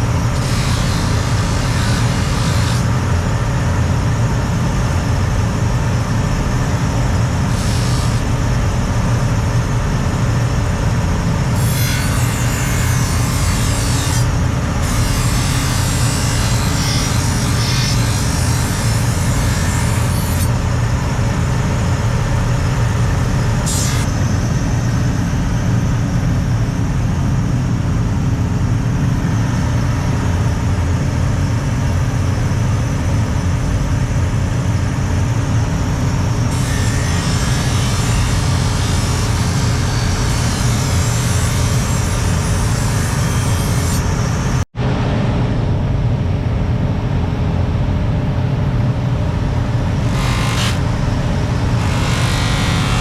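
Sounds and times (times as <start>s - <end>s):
machine humming: 0.0s - 4.5s, 5.1s - 25.5s, 49.0s - 53.0s.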